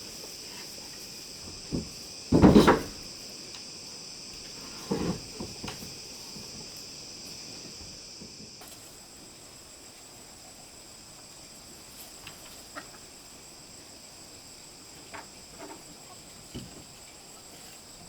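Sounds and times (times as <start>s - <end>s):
insects chirring: 0.0s - 18.0s
wooden knocking and clattering: 1.4s - 3.1s.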